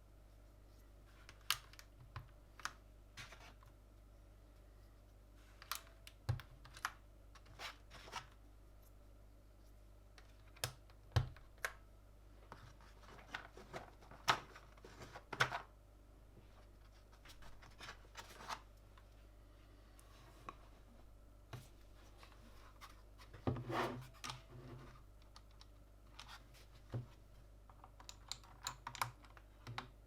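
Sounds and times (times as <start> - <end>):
mechanical keyboard parts clicking: 27.7 - 29.9.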